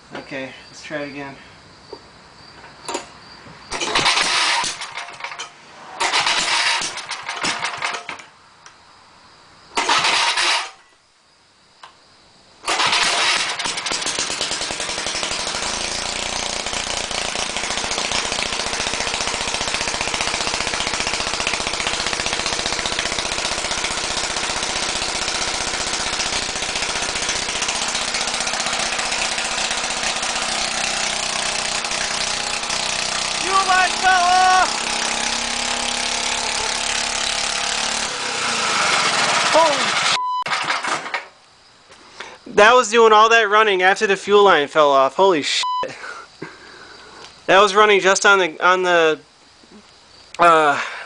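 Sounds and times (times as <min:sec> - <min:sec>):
snowblower engine running: 0:03.7 - 0:08.1, 0:09.8 - 0:10.8, 0:12.7 - 0:41.2
snowblower engine cranking: 0:03.7 - 0:08.4, 0:09.8 - 0:10.8, 0:12.6 - 0:41.4.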